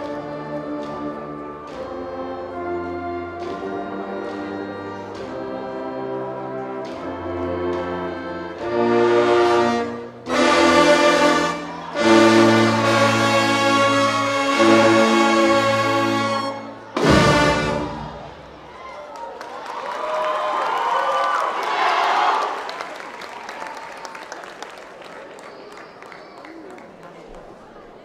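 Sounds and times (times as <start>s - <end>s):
marching band brass chords: 0.0s - 18.8s.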